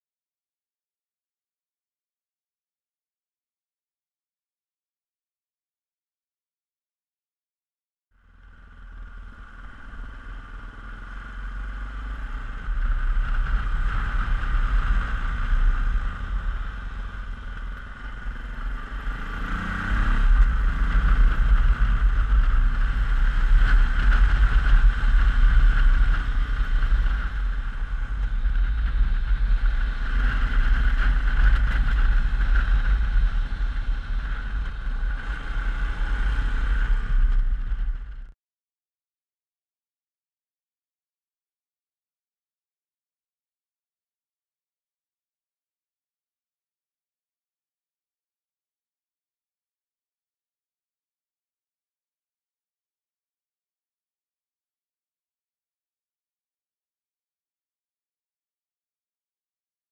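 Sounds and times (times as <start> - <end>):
motorcycle engine: 8.2 - 38.3
road noise: 8.2 - 38.3
wind buffeting microphone: 11.6 - 38.3.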